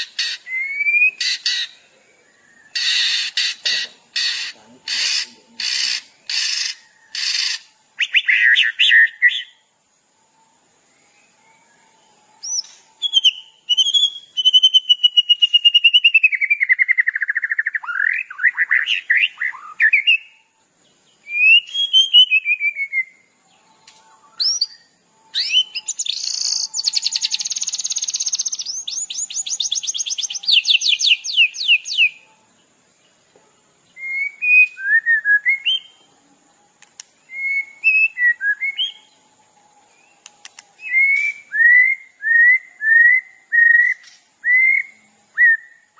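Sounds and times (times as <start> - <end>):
rapid repeated bird notes: 0.0 - 10.9
songbird whistled song: 0.0 - 45.9
short chirpy bird phrases: 0.2 - 9.4.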